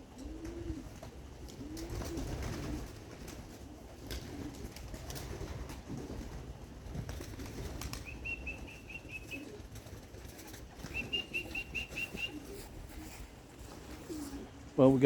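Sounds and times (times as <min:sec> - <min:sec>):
pigeons cooing: 0:00.0 - 0:14.8
wings flapping: 0:00.1 - 0:14.7.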